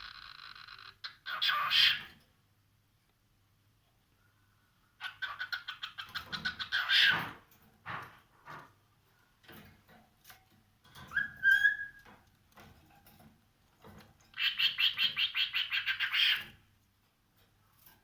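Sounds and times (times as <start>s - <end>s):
cockatiel whistle: 11.1s - 12.0s.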